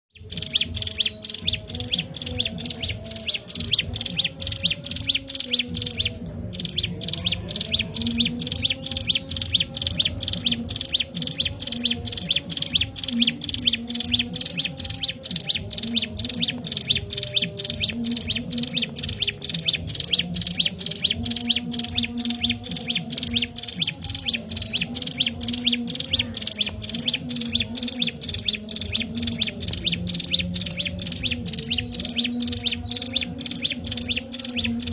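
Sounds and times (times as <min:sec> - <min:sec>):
bird chattering calls: 0:00.1 - 0:34.9.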